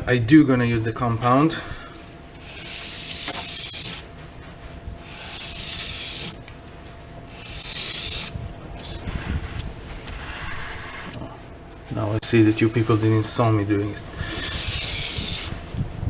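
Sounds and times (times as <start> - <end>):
knife scraping on sharpening board: 7.4 - 8.3.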